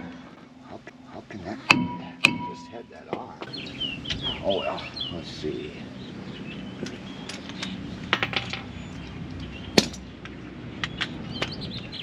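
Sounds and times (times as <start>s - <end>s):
loud metal clank: 1.7s - 2.9s.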